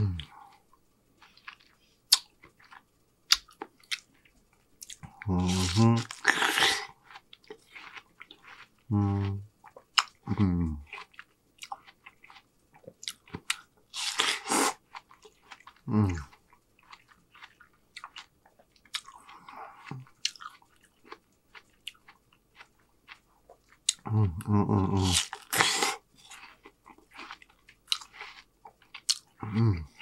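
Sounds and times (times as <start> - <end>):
low mmm hums: 0.0 - 2.0, 5.0 - 6.2, 8.8 - 9.6, 10.2 - 10.9, 24.0 - 25.2
noisy breath hiss: 0.0 - 2.2, 13.9 - 14.8
chewing juicy fruit: 0.0 - 30.0.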